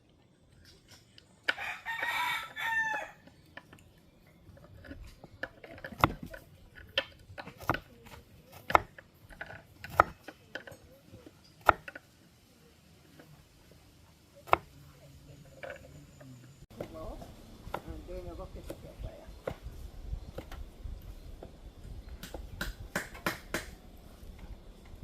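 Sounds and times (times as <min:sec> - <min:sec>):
rooster crowing: 0:01.5 - 0:03.3
knife chopping on cutting board: 0:09.9 - 0:10.3.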